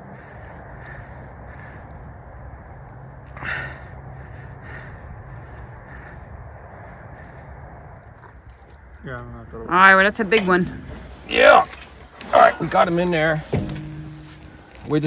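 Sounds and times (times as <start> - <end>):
steady low hum: 0.0 - 15.0
bird calling: 8.0 - 15.0.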